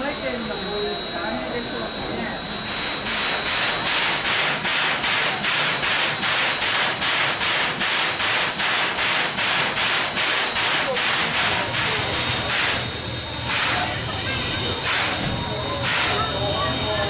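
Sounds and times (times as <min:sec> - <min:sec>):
steam locomotive chuffing: 0:00.0 - 0:17.0.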